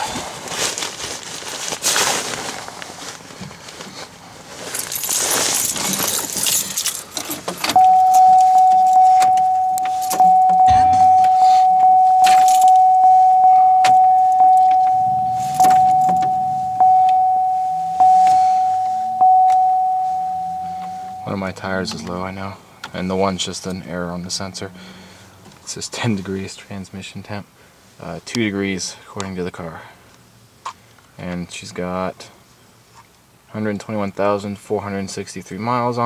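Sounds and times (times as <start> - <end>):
keys jangling: 4.8 - 11.0, 12.2 - 12.8
car warning chime dinging: 7.6 - 25.1.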